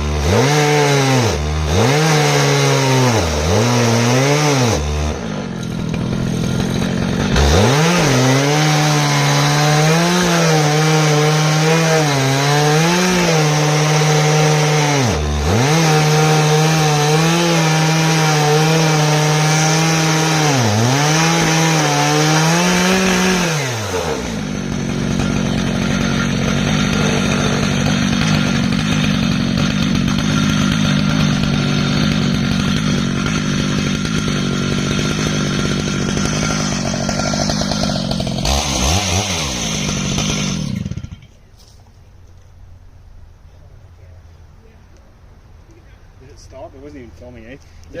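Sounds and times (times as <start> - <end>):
chainsaw cutting log: 0.0 - 41.5.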